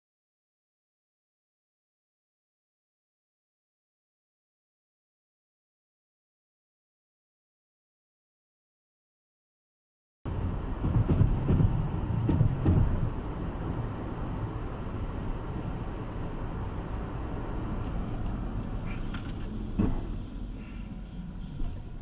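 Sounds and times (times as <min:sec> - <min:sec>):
low thumps: 0:10.3 - 0:13.2
car road and engine rumble: 0:10.3 - 0:22.0.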